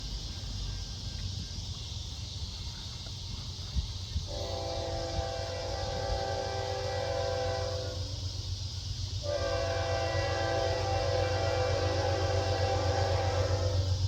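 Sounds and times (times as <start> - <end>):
low rumble and hiss: 0.0 - 14.0
locomotive air horn chord: 4.3 - 8.1, 9.2 - 14.0.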